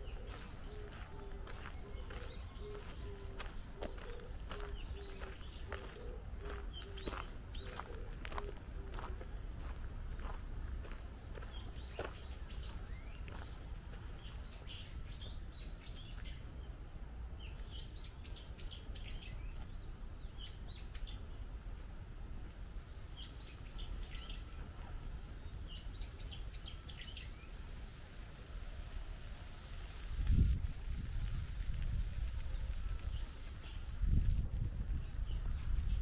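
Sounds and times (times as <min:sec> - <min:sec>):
birds chirping: 0:00.0 - 0:16.7.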